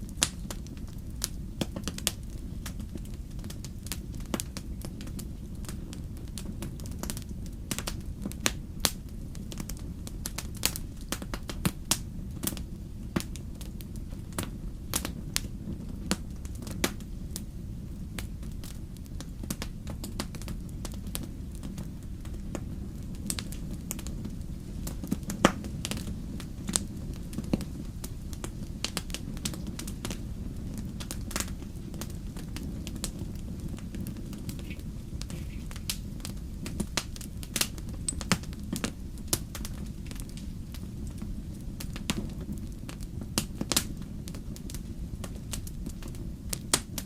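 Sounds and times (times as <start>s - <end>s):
fire crackling and popping: 0.0s - 47.0s
low rumble of flames: 0.0s - 47.0s.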